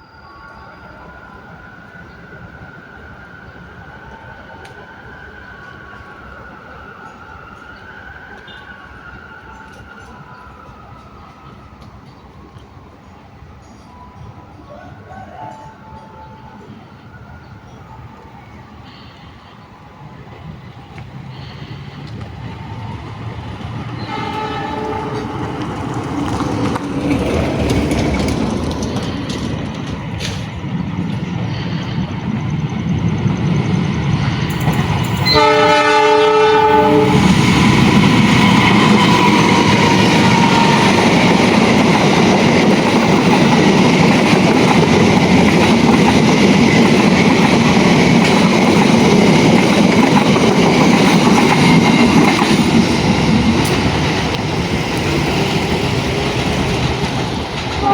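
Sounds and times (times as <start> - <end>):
train rumbling and clattering past: 0.0 - 57.9
train horn: 8.3 - 9.0, 14.7 - 16.8, 23.9 - 26.2, 35.2 - 41.3.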